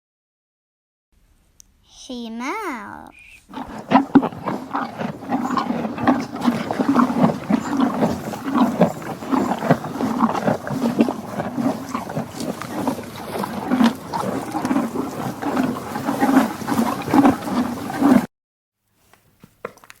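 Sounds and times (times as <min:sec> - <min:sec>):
donkey braying: 0:03.5 - 0:18.3.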